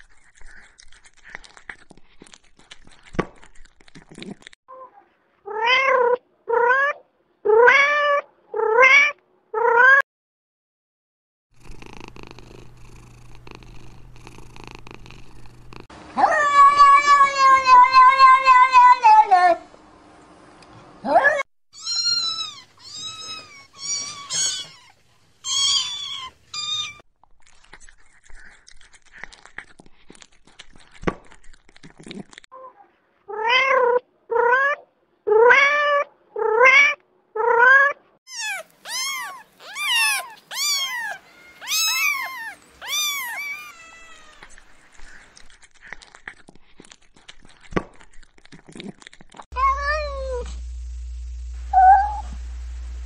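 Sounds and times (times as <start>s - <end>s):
cats meowing: 16.2s - 19.4s, 21.8s - 27.0s, 35.4s - 44.6s, 49.6s - 50.5s.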